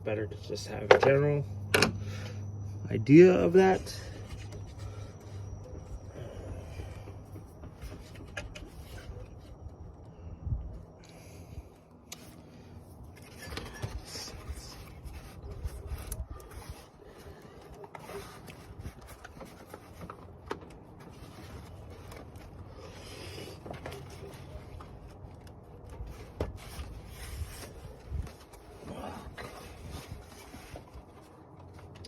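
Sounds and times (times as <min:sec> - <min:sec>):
rubbing and scraping: 0:12.2 - 0:32.0.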